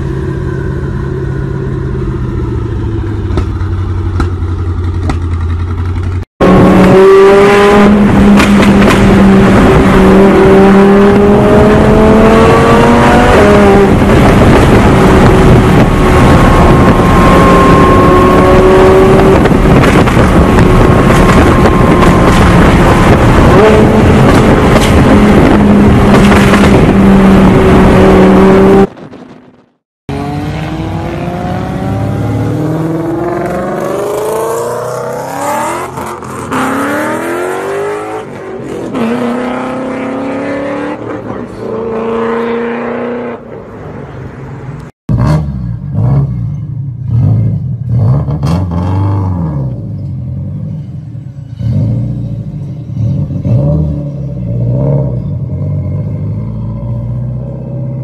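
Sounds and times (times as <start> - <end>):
car engine revving at high revs: 6.4 - 29.0, 30.1 - 38.3.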